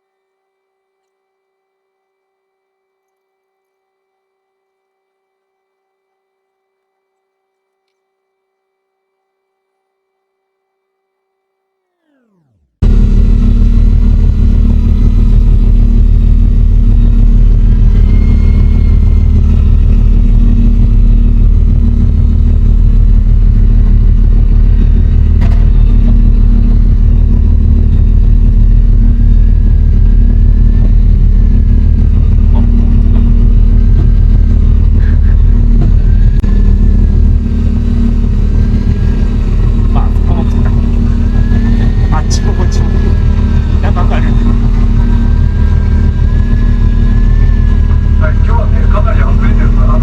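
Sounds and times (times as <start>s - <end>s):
boat engine droning: 12.0s - 50.0s.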